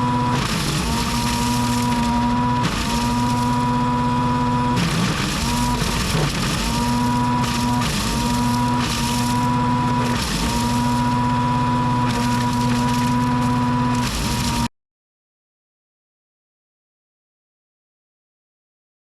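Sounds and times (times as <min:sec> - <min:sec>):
chainsaw engine revving high: 0:00.0 - 0:14.7.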